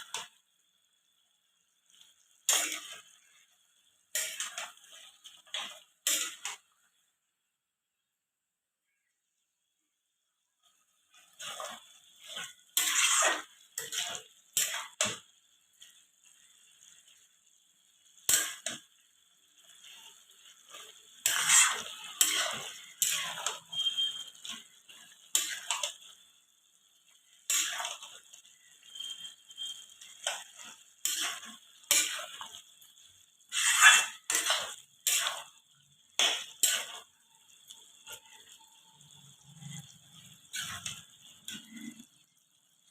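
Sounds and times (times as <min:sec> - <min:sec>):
metal utensils clinking on cookware: 0:01.9 - 0:03.5, 0:04.1 - 0:06.8, 0:11.1 - 0:16.4, 0:18.2 - 0:19.0, 0:19.6 - 0:26.2, 0:27.2 - 0:37.1, 0:37.7 - 0:42.2.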